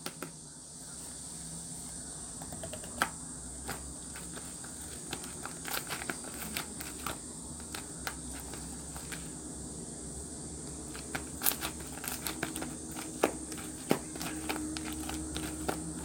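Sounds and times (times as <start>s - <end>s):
wet clicks and pops: 2.4s - 3.9s.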